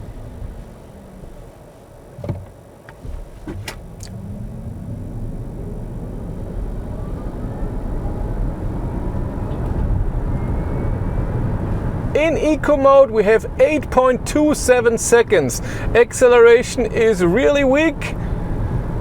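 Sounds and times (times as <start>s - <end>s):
electric motor whine: 0.0s - 12.1s
road and tyre noise: 0.0s - 19.0s.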